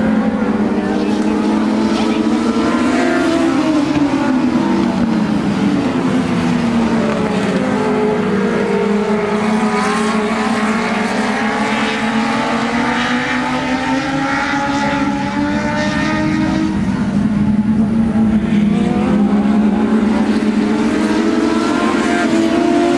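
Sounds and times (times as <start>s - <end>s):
race car engines passing: 0.0s - 22.9s.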